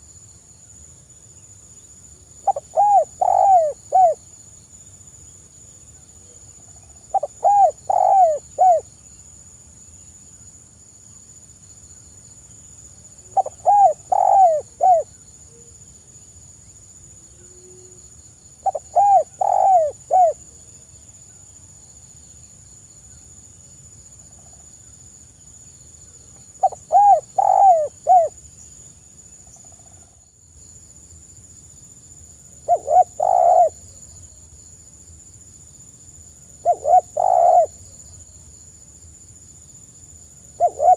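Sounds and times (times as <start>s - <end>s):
faint high-pitched hiss: 0.0s - 40.9s
dove cooing: 2.4s - 4.2s, 7.1s - 8.9s, 13.4s - 15.1s, 18.6s - 20.4s, 26.6s - 28.4s, 32.6s - 33.9s, 36.6s - 37.8s, 40.6s - 40.9s.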